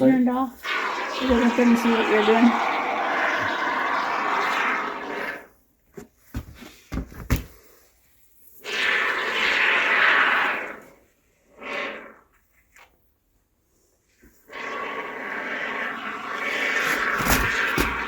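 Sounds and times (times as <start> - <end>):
spray foam can hissing: 0.6 - 5.5.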